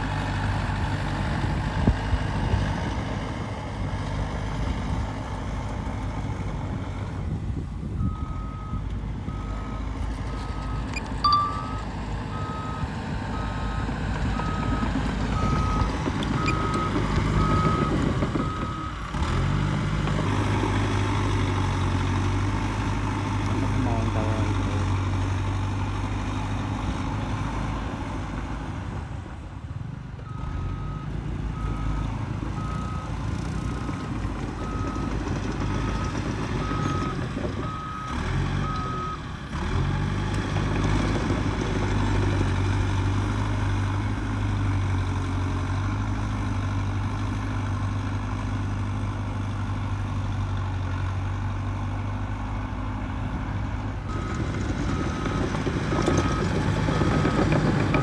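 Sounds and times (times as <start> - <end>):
bulldozer diesel engine running: 0.0 - 58.0
reversing alarm beeping: 8.0 - 18.9.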